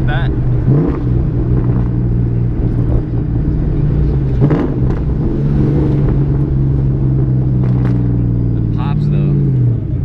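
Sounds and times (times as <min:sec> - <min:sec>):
car engine running: 0:00.0 - 0:10.0
exhaust pops: 0:00.5 - 0:08.4.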